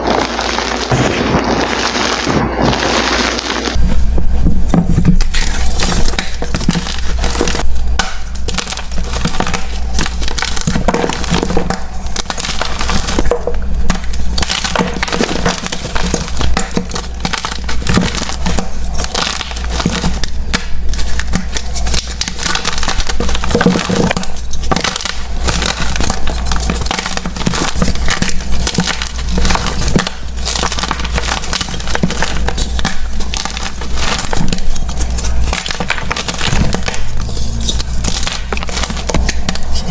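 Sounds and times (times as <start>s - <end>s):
chalk crushing and crackling: 0.0s - 39.9s
steady low hum: 0.0s - 39.9s.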